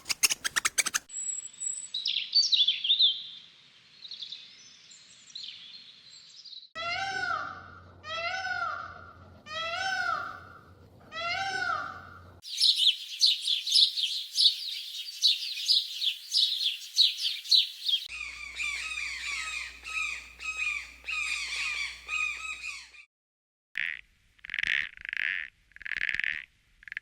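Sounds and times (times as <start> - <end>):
lower-pitched birds chirping: 0.0 - 1.1, 12.4 - 23.0
rapid high bird chirps: 0.0 - 1.1, 12.4 - 22.8
rising and falling calls: 0.0 - 1.1, 12.5 - 22.8.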